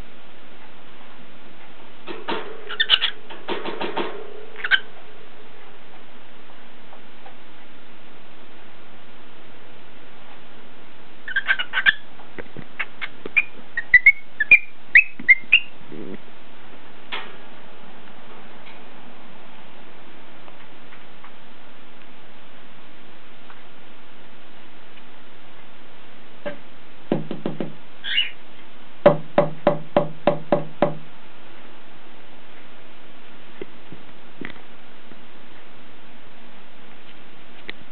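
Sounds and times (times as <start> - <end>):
cockatiel whistling and chirping: 2.7 - 3.2, 11.2 - 12.0, 12.8 - 15.8, 28.0 - 28.4
knocking on hollow object: 27.1 - 27.8, 29.1 - 31.0.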